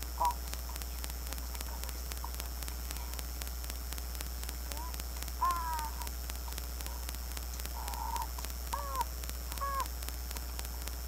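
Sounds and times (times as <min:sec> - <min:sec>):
microphone electrical hum and crackle: 0:00.0 - 0:11.0
bird cawing cries: 0:05.4 - 0:06.1, 0:07.8 - 0:10.0.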